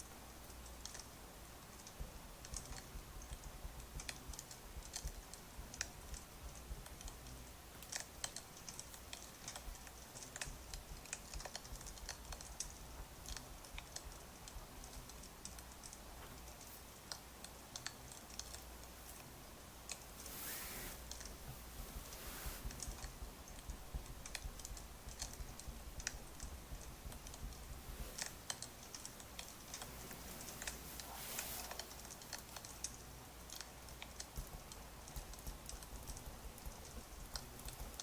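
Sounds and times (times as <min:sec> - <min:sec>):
light irregular clicks and taps: 0:00.0 - 0:38.0
low steady hum: 0:00.0 - 0:38.0.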